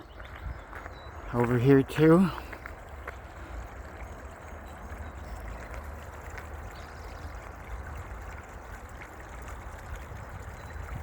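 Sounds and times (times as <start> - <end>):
stream trickling: 0.0 - 11.0.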